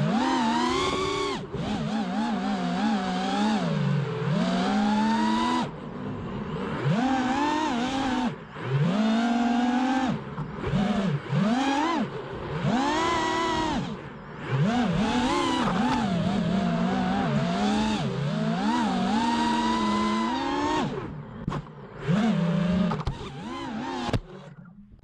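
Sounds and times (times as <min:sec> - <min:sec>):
quadcopter motors whining: 0:00.0 - 0:24.6.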